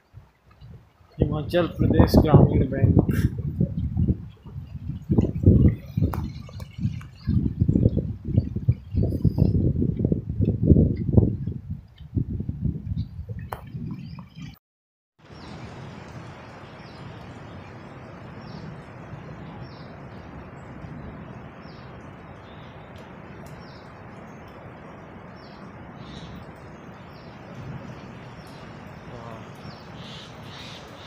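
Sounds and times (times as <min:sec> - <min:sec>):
bird chirping: 0:25.3 - 0:31.0.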